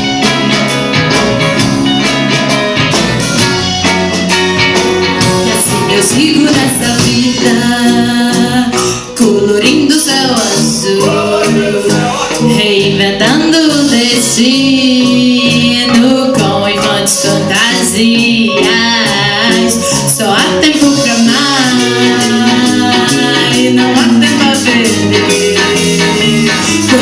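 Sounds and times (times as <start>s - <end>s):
live band playing: 0.0s - 27.0s
person singing: 5.4s - 27.0s.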